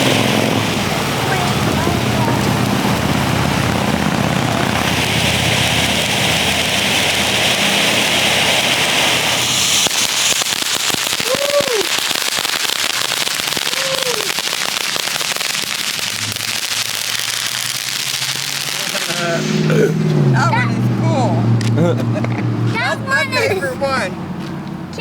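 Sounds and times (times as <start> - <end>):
rapid crackling pops: 0.0 - 19.7
firework fountain hissing: 0.0 - 24.1.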